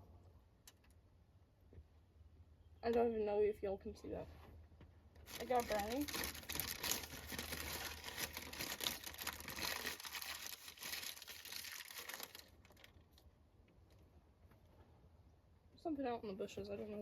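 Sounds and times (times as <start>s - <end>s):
wrapper crinkling and rustling: 5.2s - 13.3s.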